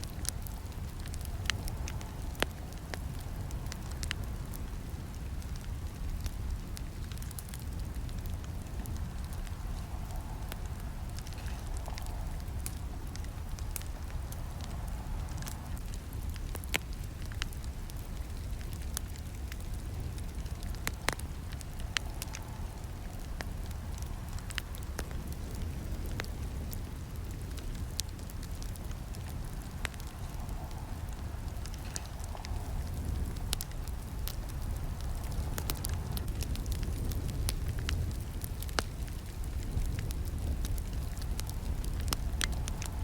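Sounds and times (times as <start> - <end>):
campfire crackling and popping: 0.0 - 43.0.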